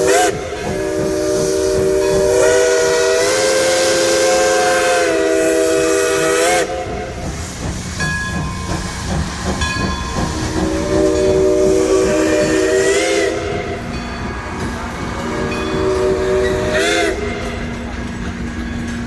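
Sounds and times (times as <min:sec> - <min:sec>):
steam locomotive whistle: 0:00.0 - 0:07.6, 0:09.8 - 0:18.0
train running rumble: 0:00.0 - 0:19.0.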